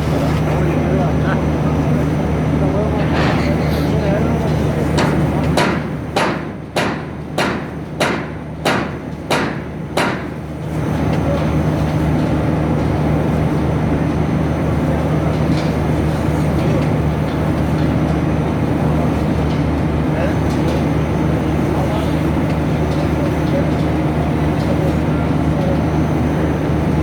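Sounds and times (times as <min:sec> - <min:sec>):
wrapping machine humming: 0:00.0 - 0:05.6.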